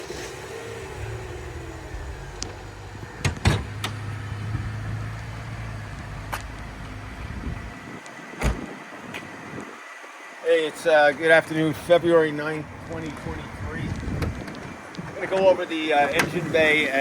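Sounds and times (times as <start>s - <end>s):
car engine idling: 0.0s - 17.0s
sharp clicks and knocks: 3.2s - 4.0s.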